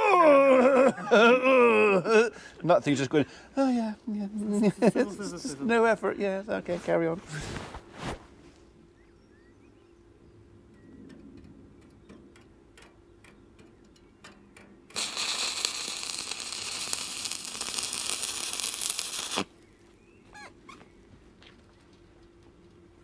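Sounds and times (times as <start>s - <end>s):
welding arc crackling: 14.9s - 19.5s.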